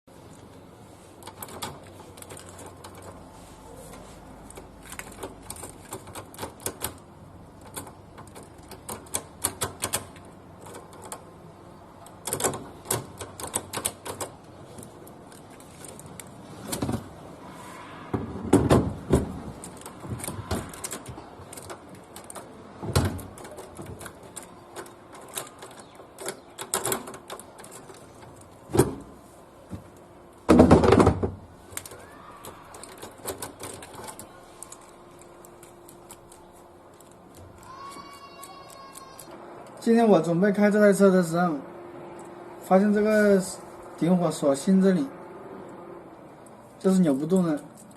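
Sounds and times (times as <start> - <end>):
mechanical clicking and knocking: 4.4 - 11.4, 12.0 - 17.1, 18.2 - 29.0
loud thumps: 30.5 - 31.4.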